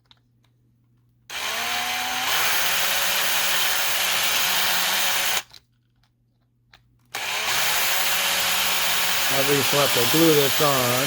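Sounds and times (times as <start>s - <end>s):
small electric drill drilling: 1.3s - 5.5s, 7.1s - 11.0s.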